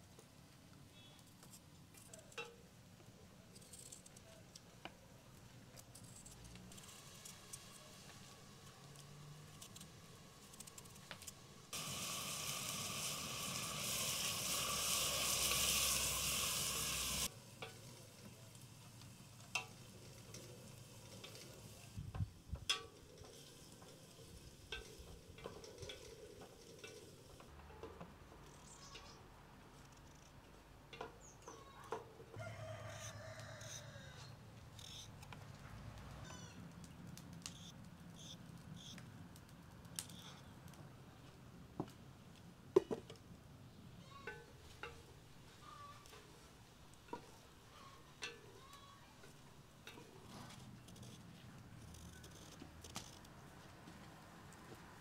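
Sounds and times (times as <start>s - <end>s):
onions sizzling in hot oil: 6.7s - 22.5s.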